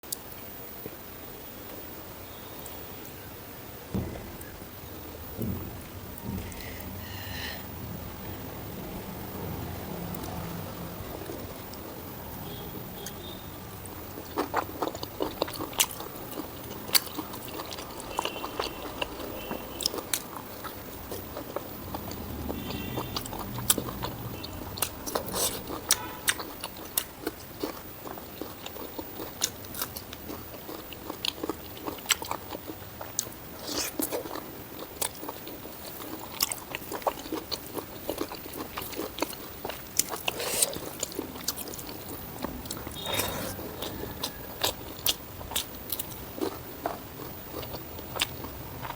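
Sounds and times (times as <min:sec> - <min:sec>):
person chewing food: 0:10.0 - 0:48.9
crunchy bites: 0:14.1 - 0:48.9.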